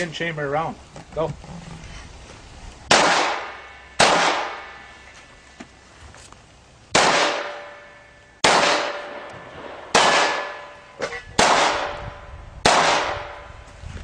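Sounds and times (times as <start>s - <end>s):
pistol shots: 2.9s - 4.8s, 6.9s - 12.0s, 12.6s - 13.5s.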